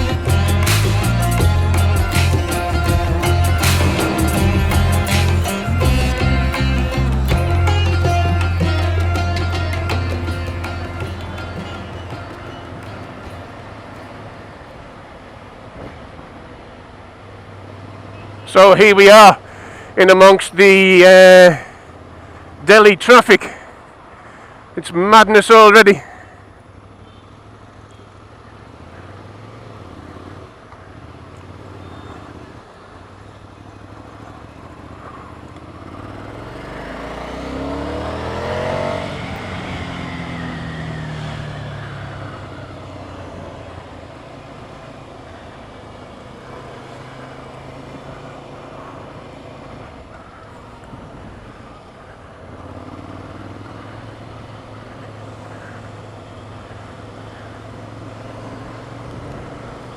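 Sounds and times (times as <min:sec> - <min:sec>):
road traffic hum: 0:00.0 - 0:59.9
vehicle passing close by: 0:33.8 - 0:59.9.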